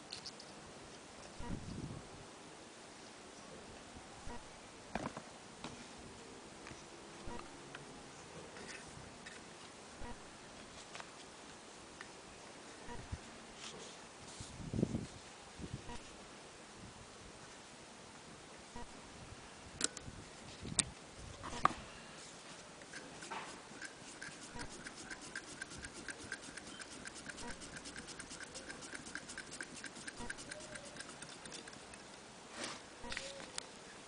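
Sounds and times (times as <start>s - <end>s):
sewing machine ticking: 23.8s - 31.7s.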